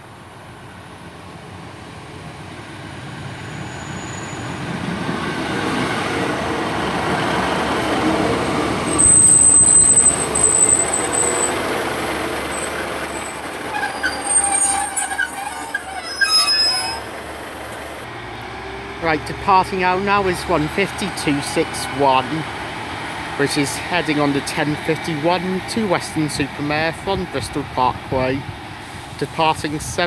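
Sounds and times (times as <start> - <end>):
train running noise: 0.0 - 18.3
high-pitched brake squeal: 3.4 - 4.7, 8.9 - 11.6, 12.3 - 17.1.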